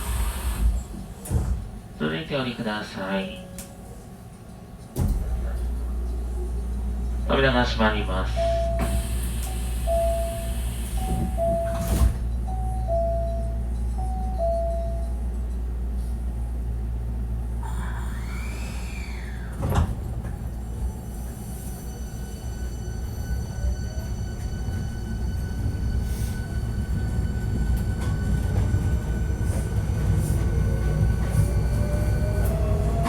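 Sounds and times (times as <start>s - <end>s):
train doors sliding shut: 0.0s - 1.9s, 4.8s - 5.8s, 8.4s - 12.6s, 18.1s - 21.6s, 24.4s - 33.0s
train motor whine: 8.4s - 13.4s
door chime: 9.9s - 15.2s.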